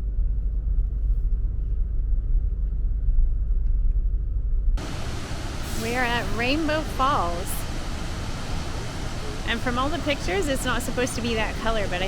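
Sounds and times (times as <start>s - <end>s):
steady low rumble: 0.0s - 12.0s
rush of falling water: 4.8s - 12.0s.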